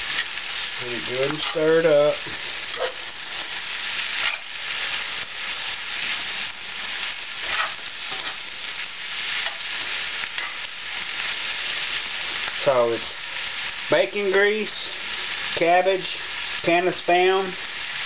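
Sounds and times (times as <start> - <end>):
food sizzling in a skillet: 0.0 - 18.0
spoon scraping a pan: 1.3 - 1.7, 2.7 - 3.1, 4.1 - 4.5, 7.4 - 8.5, 9.4 - 9.7.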